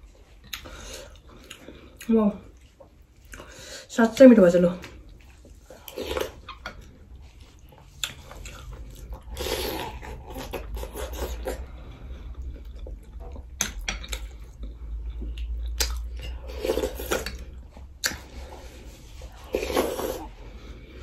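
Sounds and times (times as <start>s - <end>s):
chewing and crunching: 0.0s - 3.6s, 4.8s - 21.0s
low steady hum: 0.0s - 21.0s.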